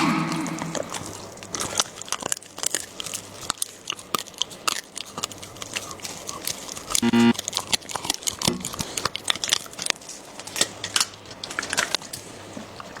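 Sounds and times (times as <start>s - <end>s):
short loud pitched sound: 0.0s - 1.3s
dog chewing and crunching bone: 0.8s - 13.0s.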